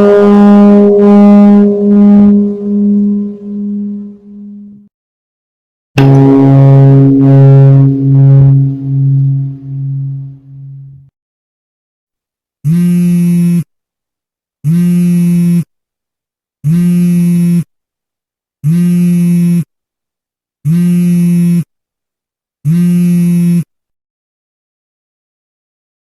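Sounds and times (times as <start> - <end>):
flat-pitched tone: 0.0 - 4.9, 6.0 - 11.1.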